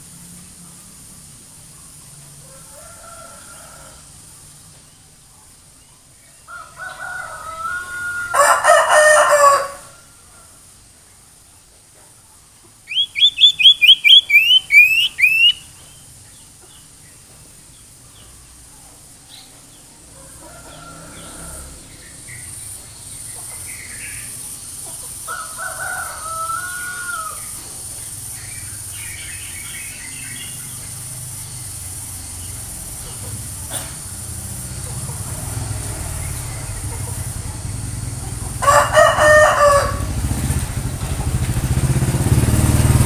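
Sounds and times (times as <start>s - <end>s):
steady high hiss: 0.0s - 8.4s, 21.7s - 38.6s
scattered bird calls: 12.8s - 25.3s, 26.0s - 33.9s
quick rising bird chirps: 12.9s - 16.0s.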